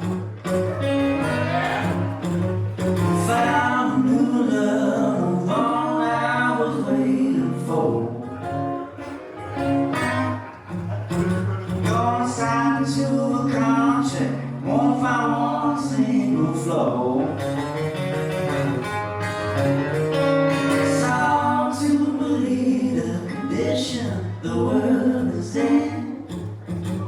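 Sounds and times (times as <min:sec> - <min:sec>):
guitar accompaniment: 0:00.0 - 0:27.0
person singing: 0:00.7 - 0:02.3, 0:03.0 - 0:09.0, 0:20.6 - 0:26.4.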